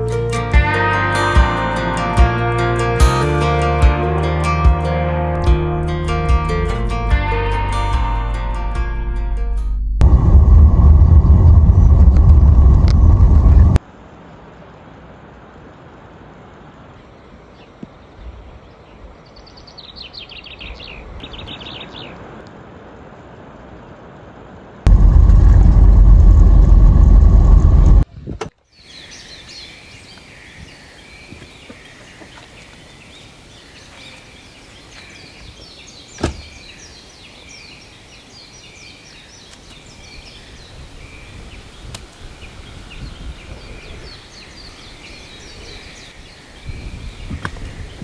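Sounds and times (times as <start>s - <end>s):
loud low rush of noise: 8.3s - 14.1s, 24.9s - 28.0s
small birds chirping: 28.6s - 48.0s.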